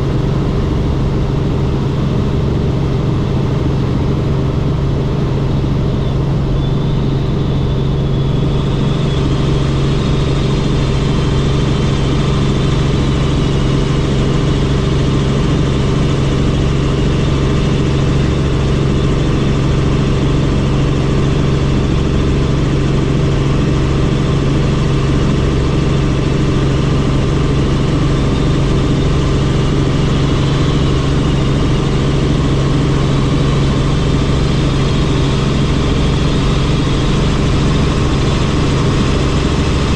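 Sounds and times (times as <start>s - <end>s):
faint high whine: 0.0s - 13.3s
helicopter engine and rotor: 0.0s - 39.9s.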